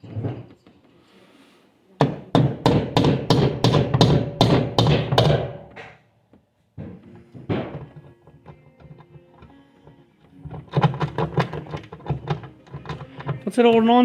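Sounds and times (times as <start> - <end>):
hard thuds: 6.8 - 9.2.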